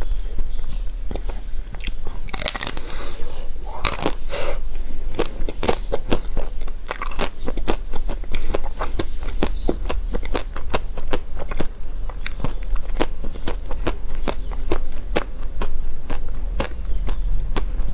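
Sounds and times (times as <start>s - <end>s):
crunchy chewing and biting: 0.4s - 17.9s.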